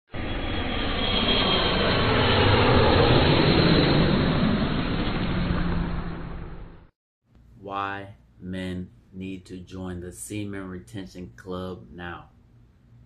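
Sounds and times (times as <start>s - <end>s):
jet engine rushing: 0.1s - 6.9s.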